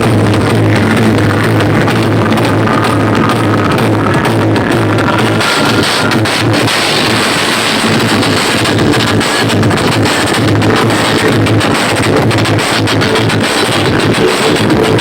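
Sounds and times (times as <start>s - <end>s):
loud distorted music with heavy bass: 0.0s - 15.0s.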